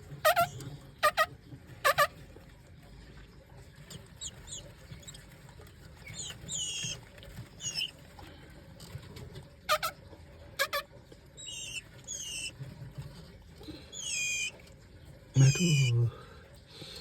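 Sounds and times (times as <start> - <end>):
small birds squeaky chirps: 3.9 - 5.3, 6.0 - 8.0, 11.4 - 12.6, 13.9 - 14.6, 15.4 - 16.0.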